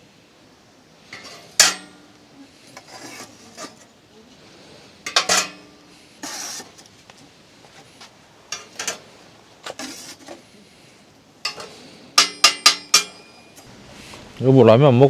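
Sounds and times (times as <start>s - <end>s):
utensils knocking and scraping: 1.1s - 3.9s, 5.0s - 6.9s, 7.7s - 10.5s, 11.4s - 14.3s
sharp ringing clinks: 12.2s - 13.6s.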